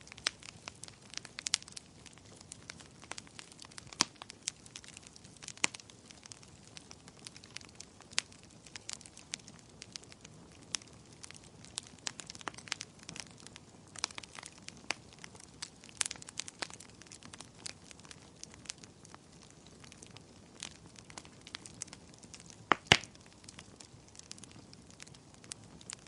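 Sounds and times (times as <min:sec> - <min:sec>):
loud pops from fire: 0:00.0 - 0:26.0
wood fire crackling: 0:00.0 - 0:26.0.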